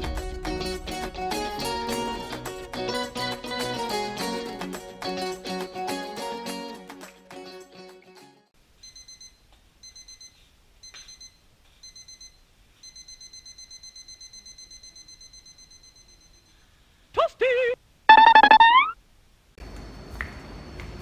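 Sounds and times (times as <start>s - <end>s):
digital alarm clock beeping: 8.9s - 10.3s, 10.9s - 16.5s, 18.1s - 19.0s.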